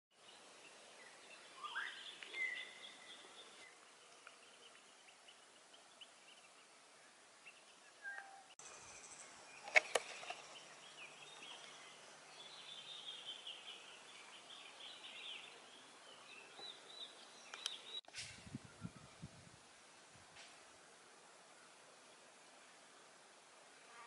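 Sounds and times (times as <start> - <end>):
light hiss: 0.2 - 24.0
bird chirps and calls: 7.4 - 8.6
sharp clicks: 17.5 - 17.8.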